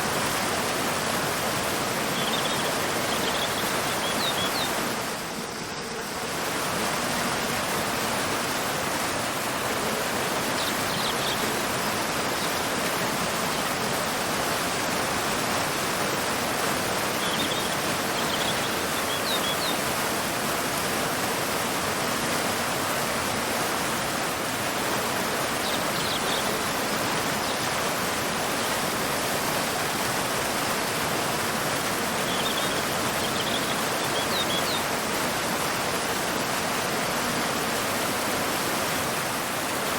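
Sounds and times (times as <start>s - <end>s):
waterfall rushing: 0.0s - 39.9s
faint bird chirps: 2.2s - 4.8s, 32.2s - 34.9s.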